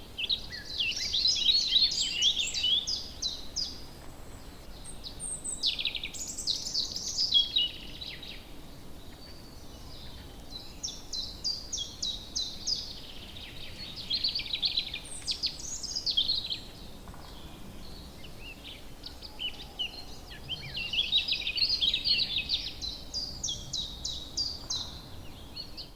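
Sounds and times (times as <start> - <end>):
faint background noise: 0.0 - 25.9
songbirds singing: 0.0 - 25.9.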